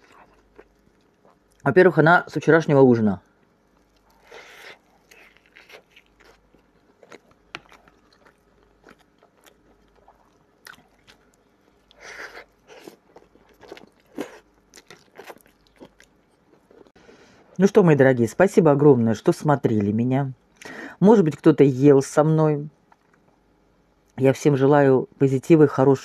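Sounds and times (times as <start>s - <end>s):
person chewing food: 0.0s - 1.6s, 3.2s - 17.0s.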